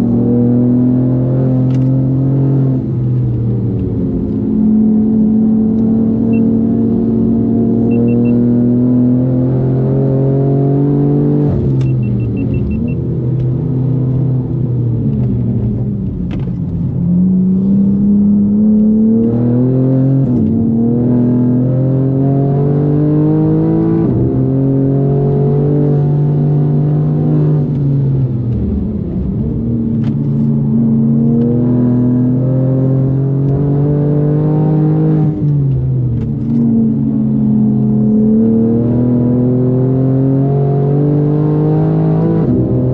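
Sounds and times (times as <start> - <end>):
car engine revving: 0.0 - 42.9
short high beeps: 7.9 - 8.5, 11.8 - 13.0.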